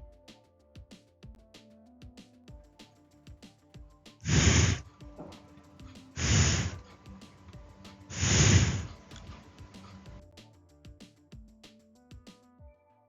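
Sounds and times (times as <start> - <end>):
soft background music: 0.0 - 13.0
breathy hisses into microphone: 4.2 - 4.8, 6.1 - 7.0, 8.1 - 10.1.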